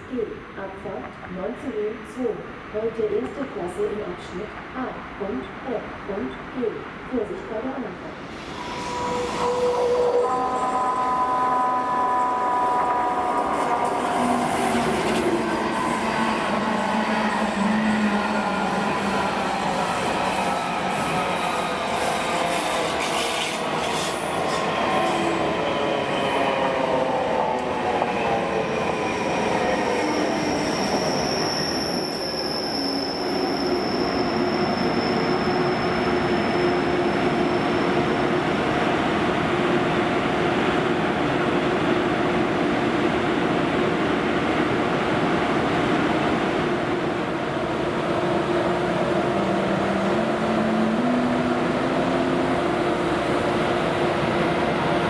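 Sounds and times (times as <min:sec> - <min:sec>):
steady train hum: 0:00.0 - 0:55.0
high-pitched wheel squeal: 0:08.4 - 0:20.2, 0:29.6 - 0:38.0.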